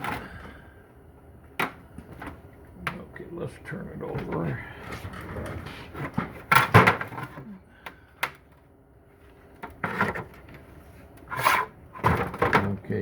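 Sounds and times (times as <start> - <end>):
case scraping on work surface: 11.3 - 11.7.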